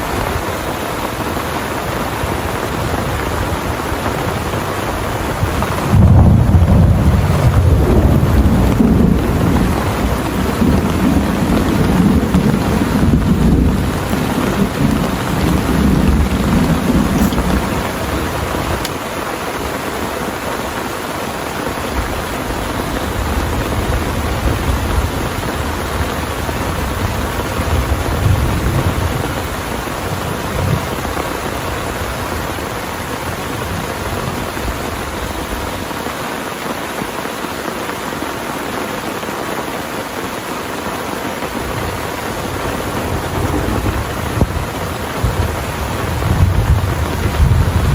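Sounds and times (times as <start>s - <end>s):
heavy rain pouring: 0.0s - 47.9s
thunder rumbling: 5.1s - 19.1s, 43.0s - 47.9s.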